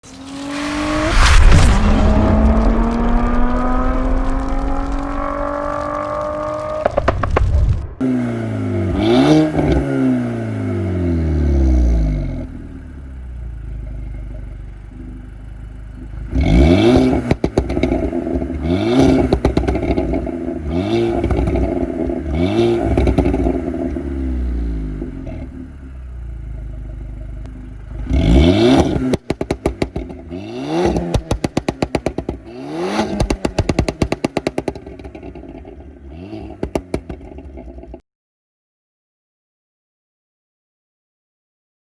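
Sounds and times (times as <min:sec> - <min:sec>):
car engine revving: 0:00.0 - 0:15.0, 0:15.9 - 0:37.8
exhaust pops and crackles: 0:00.1 - 0:08.0, 0:15.9 - 0:24.2, 0:26.4 - 0:38.0.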